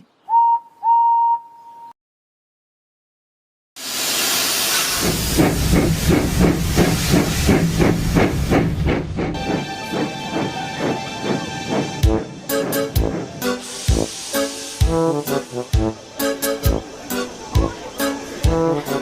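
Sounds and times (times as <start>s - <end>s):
steam hiss blast: 3.8s - 8.7s, 9.4s - 15.6s
steam locomotive chuffing: 3.8s - 19.0s
music: 9.4s - 19.0s.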